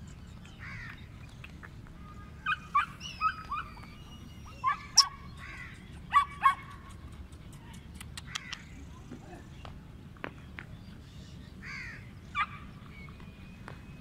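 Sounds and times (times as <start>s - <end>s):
dogs yipping and barking: 2.4s - 5.4s, 6.1s - 7.2s, 12.3s - 12.8s.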